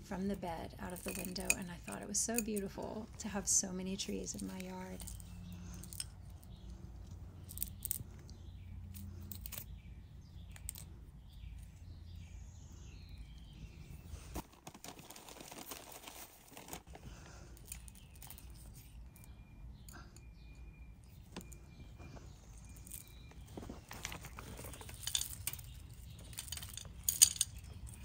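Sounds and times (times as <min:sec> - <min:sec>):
birds chirping: 0:00.0 - 0:14.4, 0:16.9 - 0:28.0
low steady hum: 0:00.0 - 0:14.4
pebbles clicking and rustling: 0:00.8 - 0:09.7, 0:10.5 - 0:11.0, 0:14.1 - 0:19.3, 0:21.3 - 0:28.0.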